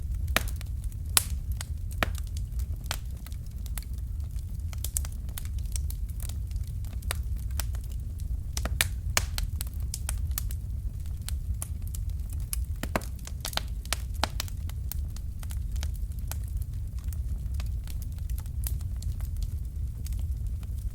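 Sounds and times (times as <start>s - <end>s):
fire crackling in fireplace: 0.0s - 20.9s
low rumble of flames: 0.0s - 20.9s.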